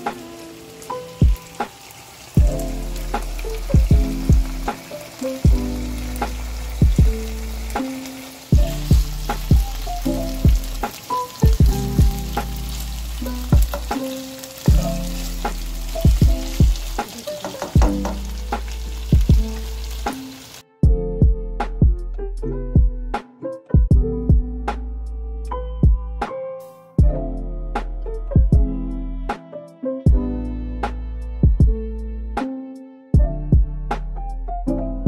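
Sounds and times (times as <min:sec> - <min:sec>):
meat sizzling in a frying pan: 0:00.0 - 0:20.6
background music with plucked notes: 0:00.0 - 0:35.0.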